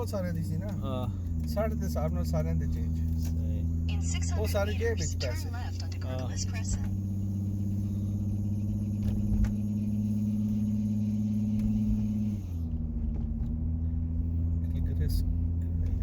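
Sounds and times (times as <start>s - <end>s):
car engine and road hum: 0.0s - 16.0s.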